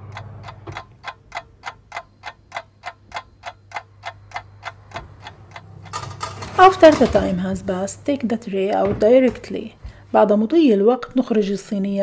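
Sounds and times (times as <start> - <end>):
clock ticking: 0.0 - 8.2.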